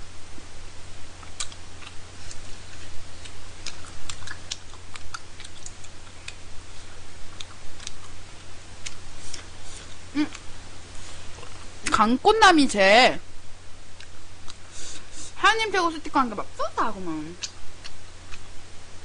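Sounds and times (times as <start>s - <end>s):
wet chewing and lip smacks: 1.2s - 6.4s, 7.3s - 8.2s, 14.0s - 15.0s, 17.4s - 18.5s.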